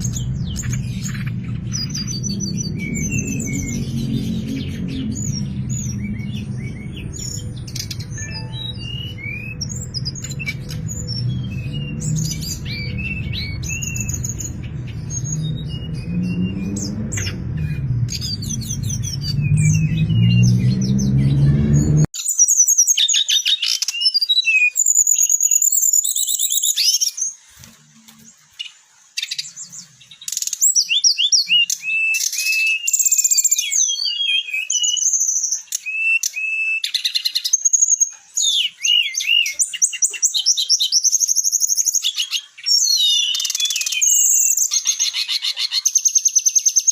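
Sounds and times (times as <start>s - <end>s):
bird singing warbles and trills: 0.0s - 46.9s
low background music: 8.2s - 11.4s.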